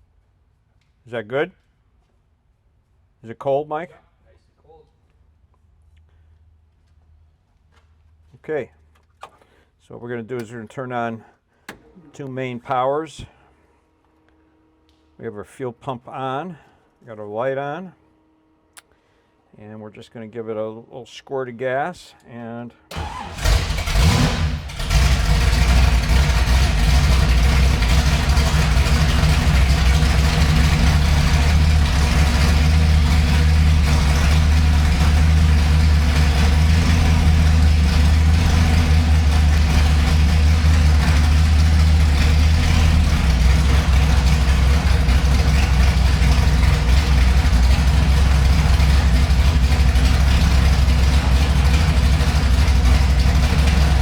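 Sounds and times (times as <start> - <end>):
car engine starting and idling: 22.9 - 54.0.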